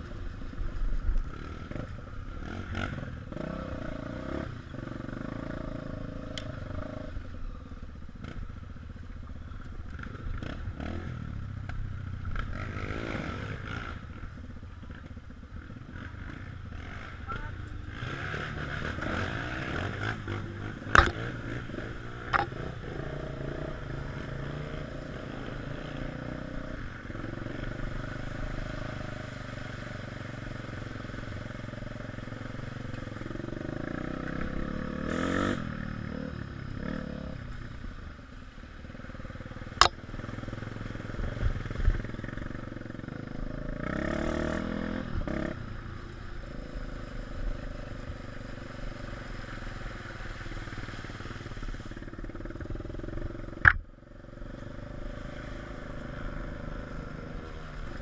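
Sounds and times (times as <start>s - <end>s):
dirt bike engines revving: 0.0s - 58.0s
sharp knocks: 53.6s - 53.8s.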